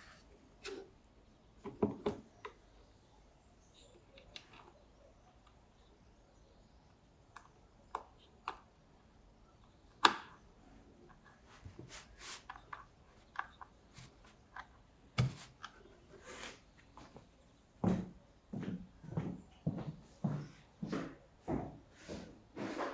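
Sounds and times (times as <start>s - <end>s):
soft scrapes: 11.4s - 12.6s, 15.4s - 16.7s.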